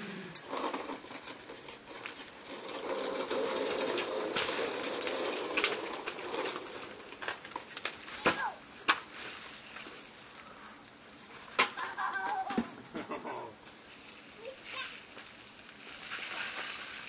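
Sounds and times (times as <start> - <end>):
soil scraping in plastic bucket: 0.4 - 8.2, 13.9 - 17.0.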